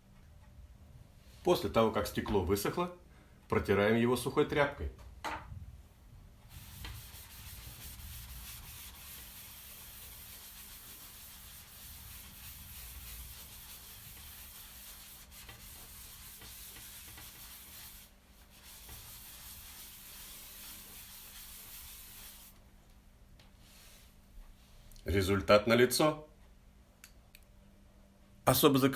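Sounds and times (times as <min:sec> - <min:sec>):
rag rubbing on glass: 0:06.5 - 0:22.5.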